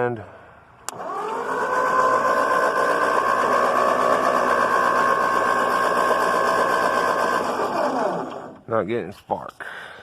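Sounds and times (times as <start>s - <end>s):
starter motor cranking engine: 0.9s - 8.7s.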